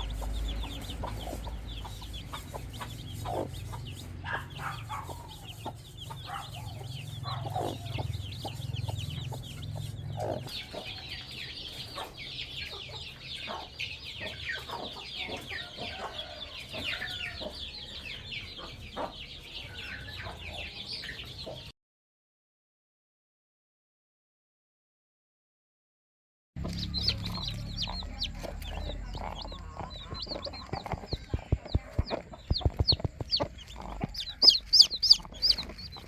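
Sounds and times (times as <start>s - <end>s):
hen clucking: 0.0s - 17.7s, 26.6s - 36.0s
chicks peeping: 0.0s - 21.7s, 26.6s - 36.0s.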